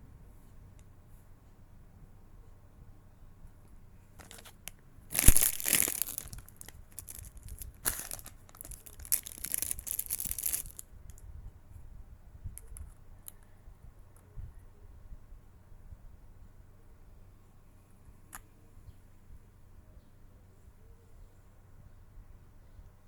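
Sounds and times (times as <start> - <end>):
packaging ripping and crinkling: 4.2 - 10.8.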